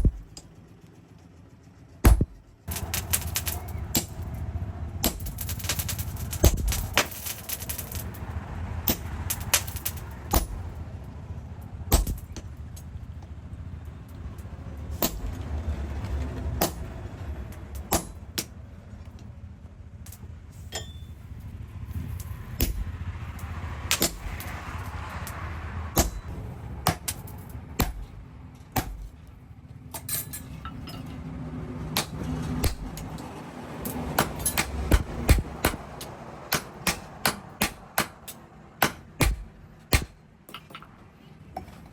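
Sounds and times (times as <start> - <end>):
steady low hum: 0.0 - 31.2, 31.9 - 41.9
hammer striking steel: 2.0 - 4.3, 5.0 - 8.2, 8.9 - 10.7, 11.9 - 12.5, 14.9 - 15.4, 16.6 - 17.0, 17.8 - 18.5, 20.1 - 21.2, 22.6 - 25.4, 26.0 - 28.2, 28.8 - 29.2, 30.0 - 31.2, 32.0 - 41.0.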